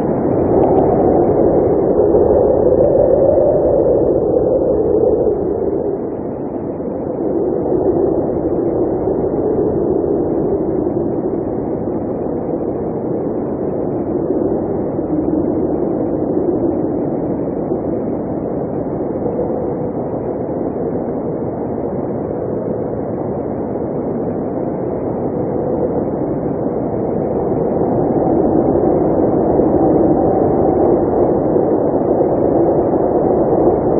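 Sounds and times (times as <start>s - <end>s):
blizzard wind blowing: 0.0s - 33.9s.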